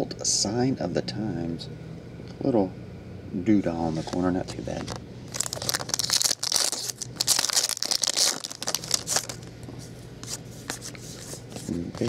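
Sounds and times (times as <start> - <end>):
wrapper crinkling and tearing: 5.3 - 9.5.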